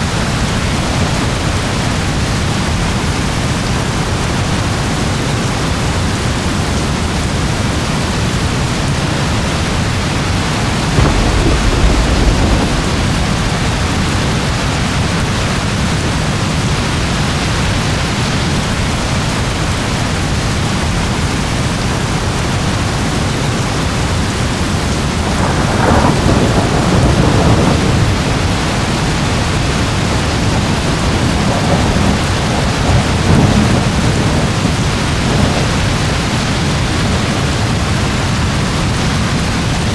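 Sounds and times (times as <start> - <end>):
steady rain: 0.0 - 39.9
thunder rumbling: 7.2 - 21.6, 22.4 - 39.9.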